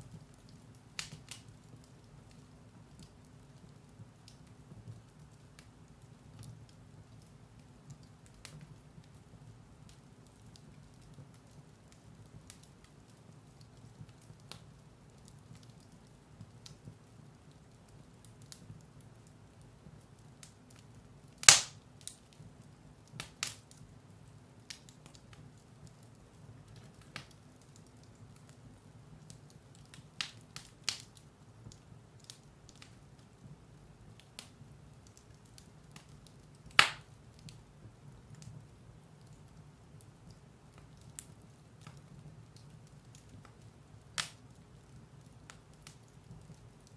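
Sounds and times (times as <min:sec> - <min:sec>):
firewood crackling and popping: 0:00.0 - 0:46.9
low steady fire rumble: 0:00.0 - 0:46.9.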